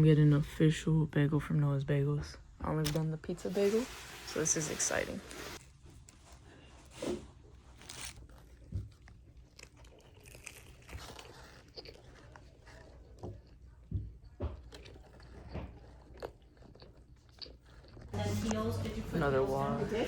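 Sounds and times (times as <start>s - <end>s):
person chewing a bagel: 5.6s - 18.2s.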